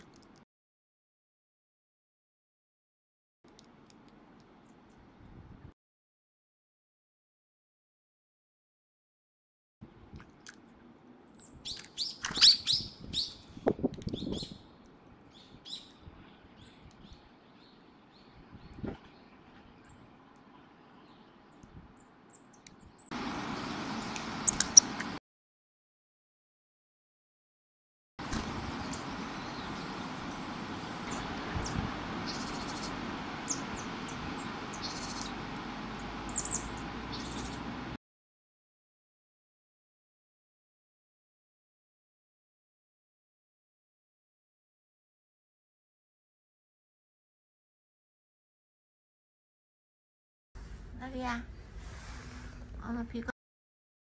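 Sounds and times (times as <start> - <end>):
songbirds chirping: 10.8 - 25.2, 28.2 - 38.0.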